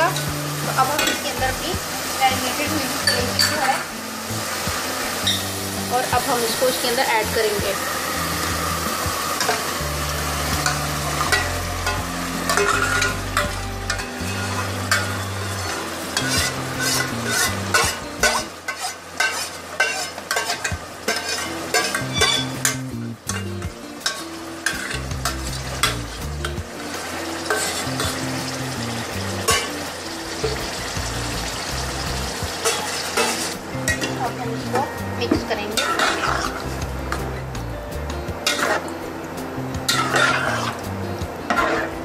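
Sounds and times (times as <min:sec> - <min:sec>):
meat sizzling in hot oil: 0:00.0 - 0:42.0
metal spoon scraping bowl and pot: 0:05.2 - 0:05.6, 0:10.6 - 0:26.6, 0:27.4 - 0:28.5, 0:29.4 - 0:29.8, 0:32.6 - 0:34.2, 0:35.8 - 0:37.3, 0:38.4 - 0:39.0, 0:39.9 - 0:40.8, 0:41.5 - 0:42.0.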